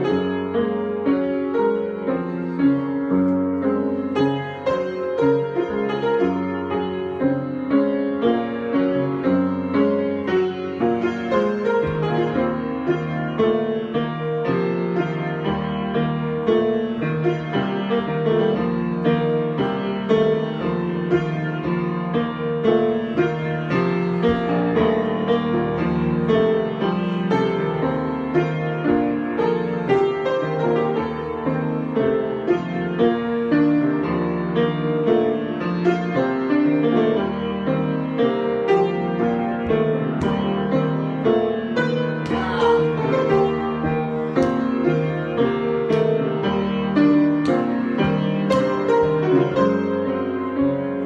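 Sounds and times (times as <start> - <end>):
improvised piano music: 0.0 - 51.0.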